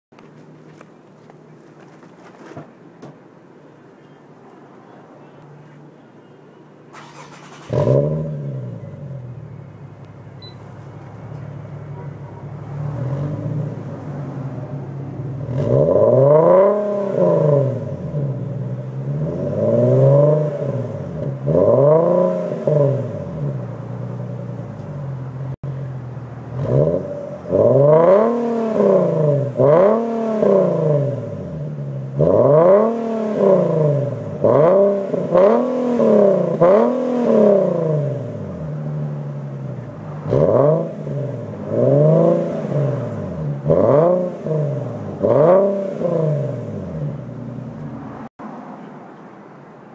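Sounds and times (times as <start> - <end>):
car engine idling: 4.8 - 32.6, 33.3 - 48.4
engine revving: 6.9 - 9.5, 12.5 - 25.7, 26.4 - 48.4.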